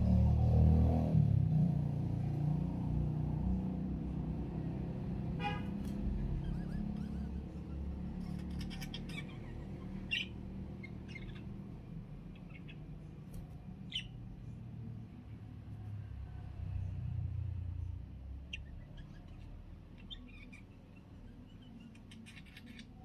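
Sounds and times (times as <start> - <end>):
budgerigars chirping: 6.4 - 13.0, 13.8 - 14.2, 18.5 - 23.0.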